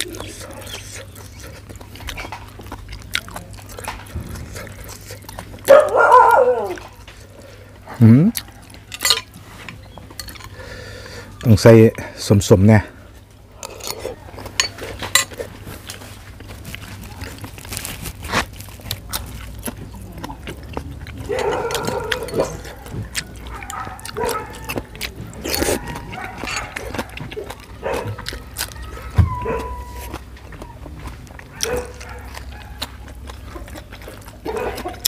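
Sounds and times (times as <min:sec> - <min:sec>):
man chewing with crunching: 0:00.0 - 0:35.0
short pitched cries: 0:28.7 - 0:30.1.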